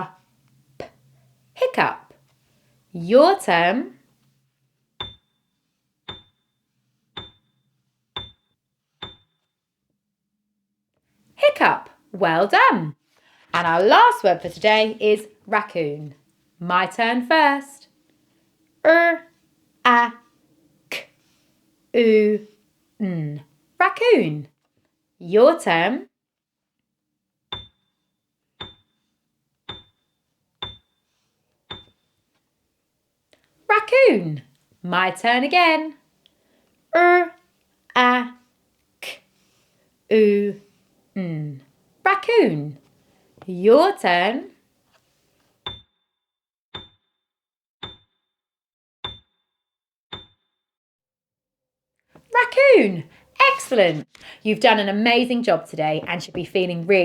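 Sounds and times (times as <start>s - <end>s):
high bell-like ping: 5.0s - 5.4s.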